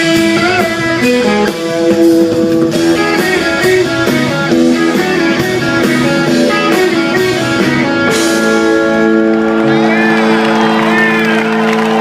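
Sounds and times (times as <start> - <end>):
drums steady beat: 0.0 - 9.2
electric guitars melody: 0.0 - 12.0.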